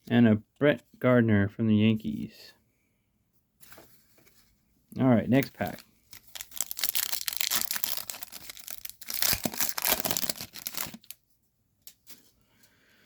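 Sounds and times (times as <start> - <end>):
wrapper tearing and crinkling: 5.6 - 11.2.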